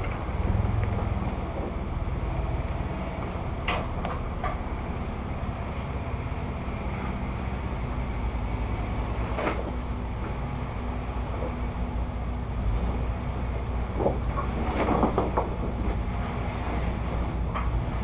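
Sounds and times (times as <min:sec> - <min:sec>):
engine running at low revs: 0:00.0 - 0:18.0
sharp knocks or scrapes: 0:14.0 - 0:16.0.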